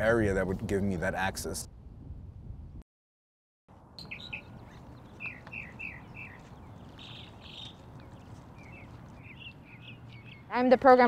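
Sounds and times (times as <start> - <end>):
songbird chirping: 3.8 - 11.0.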